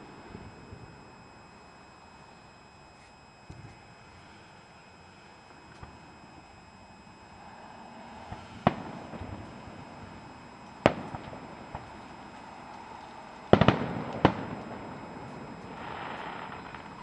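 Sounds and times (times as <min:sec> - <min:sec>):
fireworks bangs: 0:08.2 - 0:17.0.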